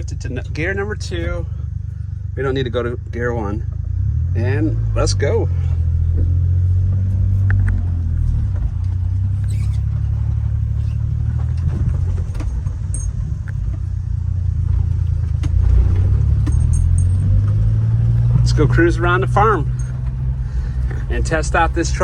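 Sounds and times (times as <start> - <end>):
small truck engine droning: 0.0 - 22.0
light clicks and rattles: 7.4 - 22.0.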